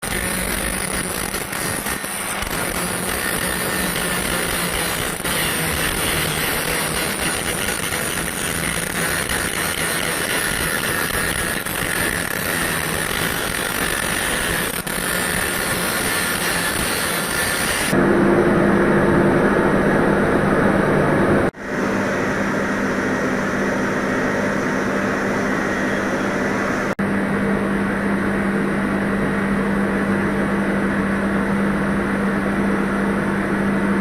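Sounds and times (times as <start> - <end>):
welding arc crackling: 0.0 - 18.0.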